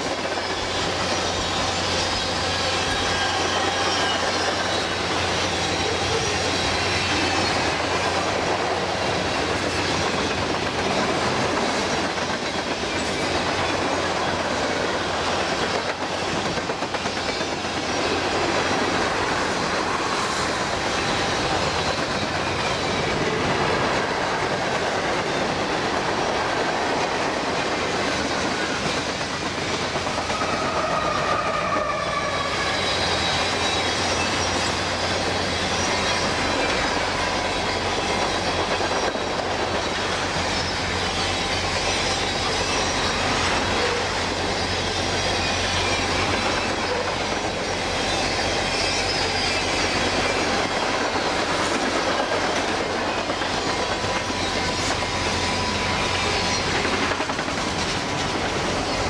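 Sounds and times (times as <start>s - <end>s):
steel wheels rolling on rails: 0.0s - 59.0s
high wheel squeals: 0.3s - 10.4s, 30.1s - 38.9s.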